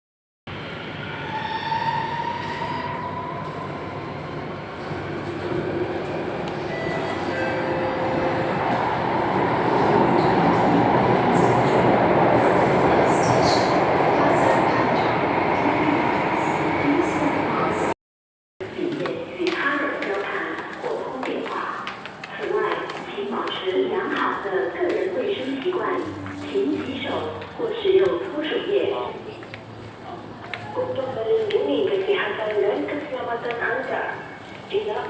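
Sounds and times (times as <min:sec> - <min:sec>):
train wheel and track noise: 0:00.5 - 0:18.0, 0:18.6 - 0:35.0.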